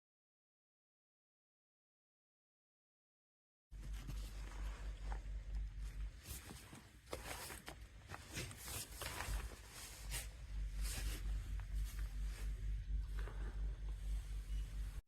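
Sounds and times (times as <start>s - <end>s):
steady low hum: 3.7s - 15.0s
scratchy rustling and handling: 3.8s - 15.0s.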